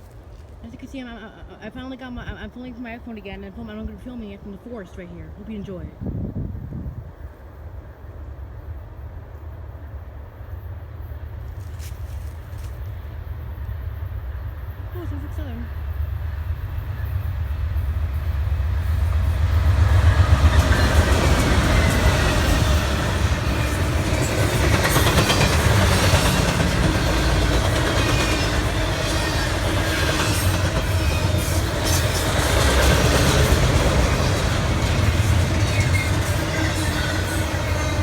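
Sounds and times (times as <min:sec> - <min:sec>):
diesel locomotive engine rumble: 0:00.0 - 0:38.0
train wheels clacking on rail joints: 0:19.4 - 0:38.0.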